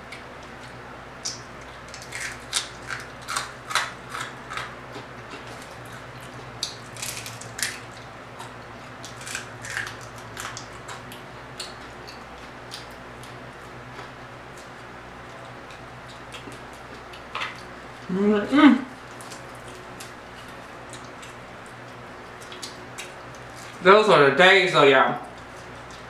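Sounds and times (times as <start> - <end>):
steady low hum: 0.0 - 26.0
crunchy eating mouth sounds: 1.2 - 17.8.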